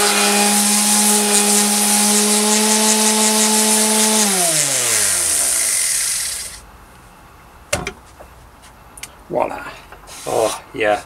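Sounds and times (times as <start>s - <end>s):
orbital sander motor hum: 0.0s - 6.6s
sanding hiss on wood: 0.0s - 6.6s, 10.1s - 10.7s.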